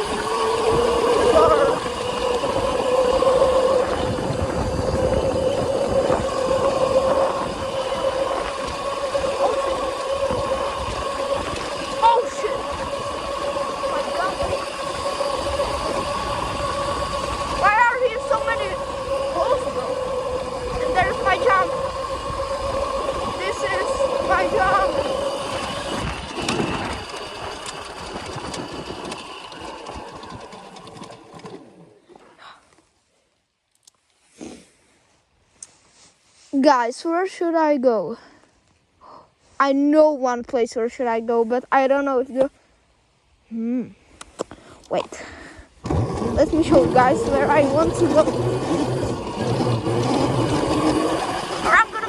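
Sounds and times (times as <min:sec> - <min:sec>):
electric bike motor whining: 0:00.0 - 0:33.0, 0:43.5 - 0:52.0.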